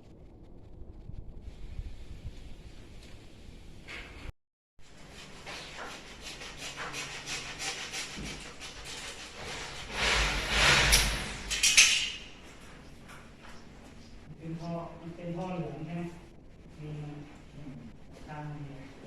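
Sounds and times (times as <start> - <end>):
scraping and rubbing strokes: 4.9 - 11.5.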